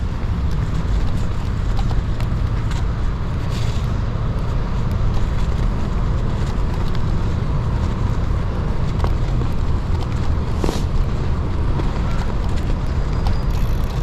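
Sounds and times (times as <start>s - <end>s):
bike tyre and wind rumble: 0.0s - 14.0s.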